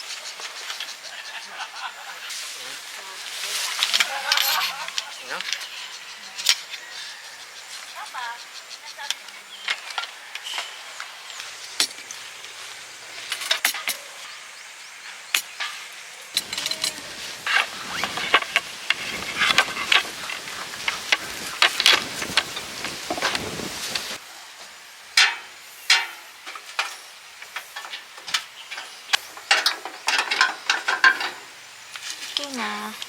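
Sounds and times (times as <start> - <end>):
clicks and clinks of handling: 3.8 - 5.7, 16.4 - 17.0.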